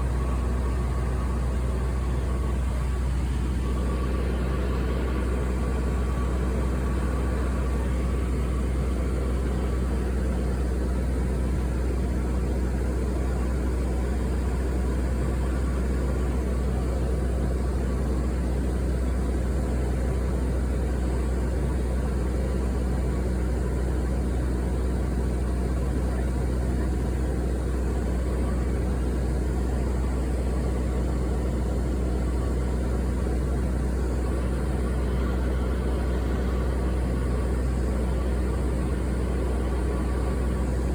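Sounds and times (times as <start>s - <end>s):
airliner cabin drone: 0.0s - 40.9s
faint steady tones: 0.0s - 40.9s.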